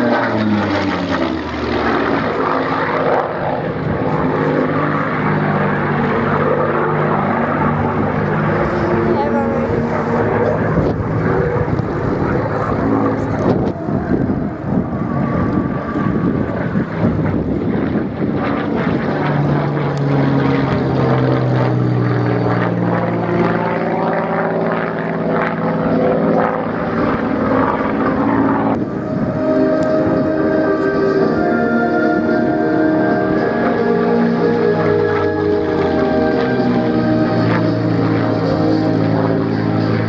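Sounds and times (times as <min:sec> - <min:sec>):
propeller plane flying past: 0:00.0 - 0:40.0
music: 0:28.9 - 0:40.0.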